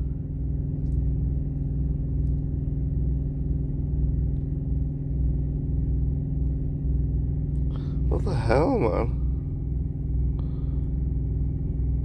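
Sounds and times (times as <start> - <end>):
diesel engine idling: 7.6 - 12.0.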